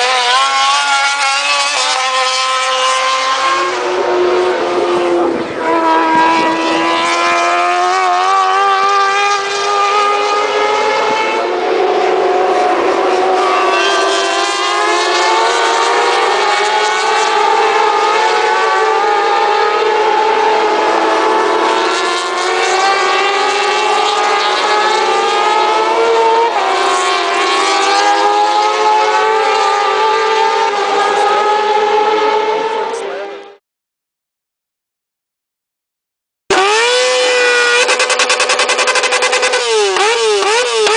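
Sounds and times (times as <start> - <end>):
motorcycle engines running: 36.5 - 40.9.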